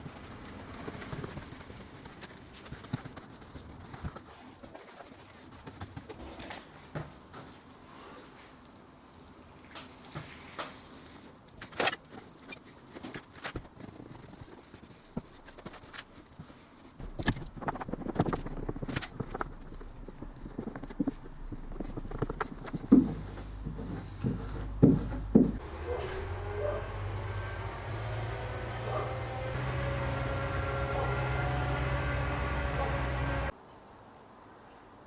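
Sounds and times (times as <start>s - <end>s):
heavy thumps: 17.0s - 33.5s
low steady hum: 17.0s - 33.5s.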